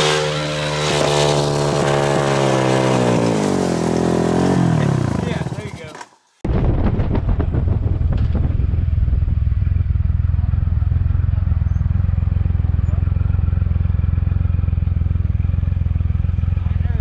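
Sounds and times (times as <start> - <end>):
motorcycle engine rumble: 0.0 - 17.0
wind noise: 6.4 - 10.3.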